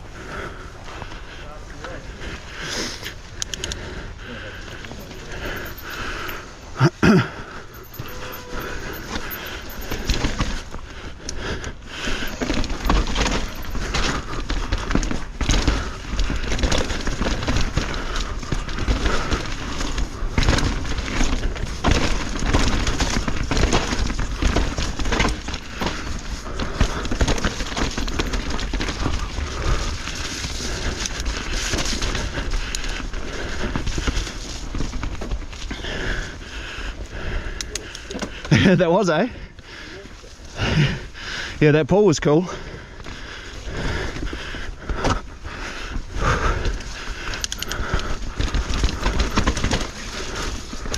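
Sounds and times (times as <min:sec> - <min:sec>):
bike tyres rolling on dirt: 0:00.0 - 0:50.9
bike knocks and rattles: 0:04.9 - 0:36.1, 0:43.9 - 0:50.9.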